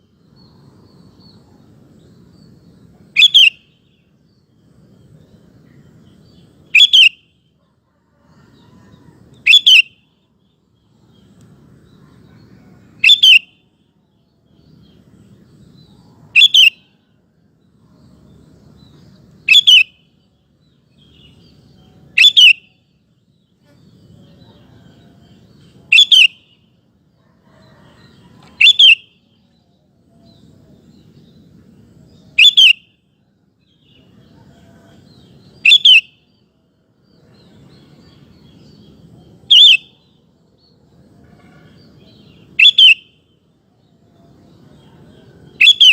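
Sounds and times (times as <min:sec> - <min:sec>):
faint low hum: 0:00.0 - 0:35.6.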